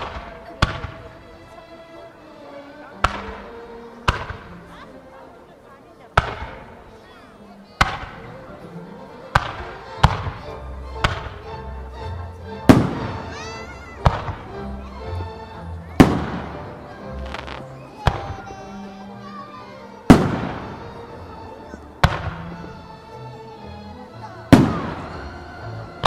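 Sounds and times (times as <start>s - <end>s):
music: 0.0s - 26.0s
firework shells bursting: 17.2s - 18.3s.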